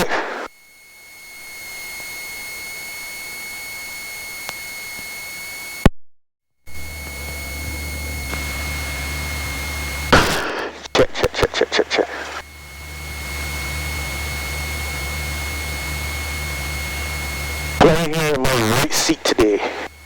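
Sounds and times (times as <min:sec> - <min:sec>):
piston engine drone: 0:06.7 - 0:20.0
thin high whine: 0:06.7 - 0:20.0
headset intercom hiss: 0:06.8 - 0:20.0.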